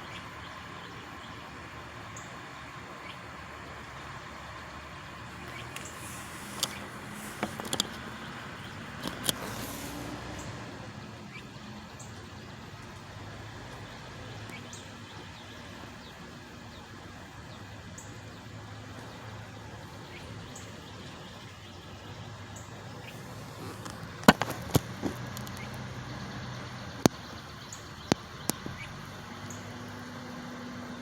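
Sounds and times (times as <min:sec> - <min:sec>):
truck engine rumbling: 0:00.0 - 0:31.0
high bird chirps: 0:05.2 - 0:10.6.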